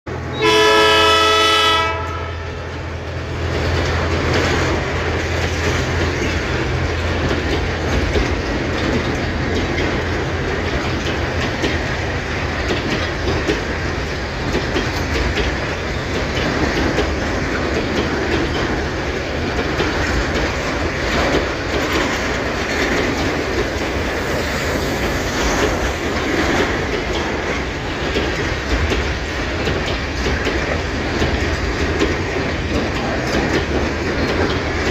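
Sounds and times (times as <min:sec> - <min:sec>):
wheels clacking over rail joints: 0:00.1 - 0:34.9
train horn: 0:00.2 - 0:02.7.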